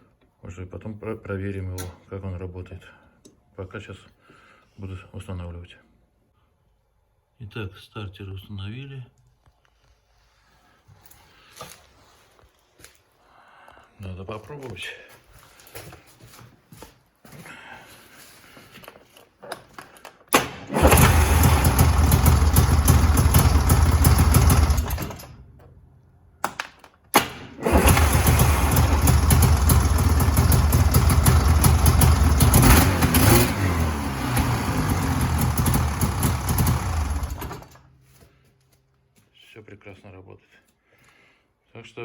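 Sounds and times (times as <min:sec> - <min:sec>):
electric starter cranking: 0:20.3 - 0:25.6, 0:27.2 - 0:37.9
snowmobile engine running: 0:20.8 - 0:25.2, 0:27.7 - 0:37.7.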